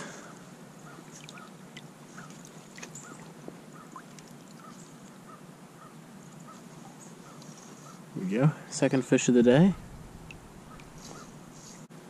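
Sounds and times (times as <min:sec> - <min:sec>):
bird calling in short notes: 0:10.6 - 0:11.4.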